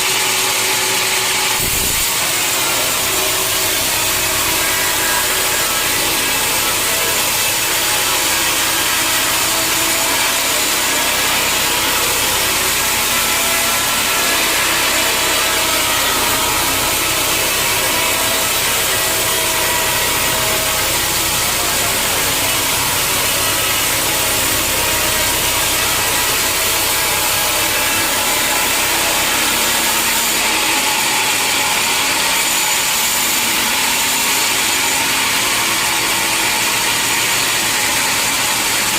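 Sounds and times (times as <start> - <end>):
saw cutting through log: 0.0 - 38.9
motor humming low: 0.8 - 30.6.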